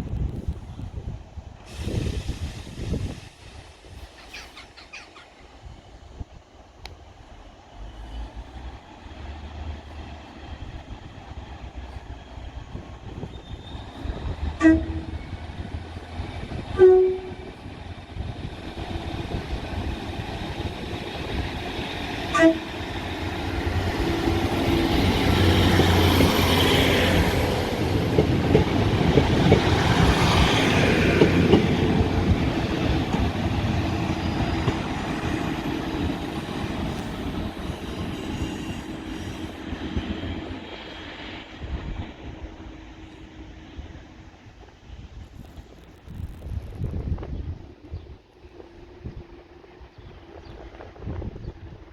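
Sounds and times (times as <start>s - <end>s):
train rumbling past: 0.0s - 51.9s
train horn blasts: 14.5s - 15.4s, 16.7s - 17.6s, 22.3s - 22.8s.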